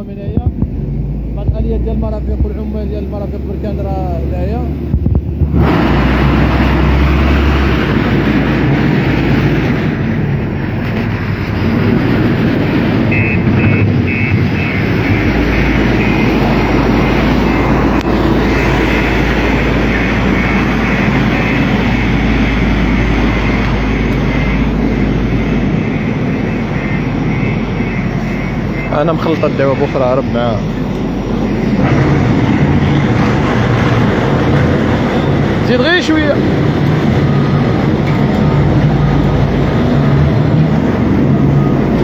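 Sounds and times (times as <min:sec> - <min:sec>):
diesel machinery engine rumbling: 0:00.0 - 0:42.0
faint pulsing high tone: 0:13.2 - 0:42.0.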